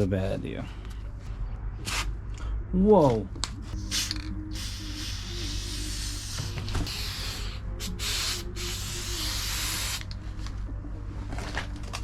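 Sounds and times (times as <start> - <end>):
spray paint can hissing: 3.8 - 10.2.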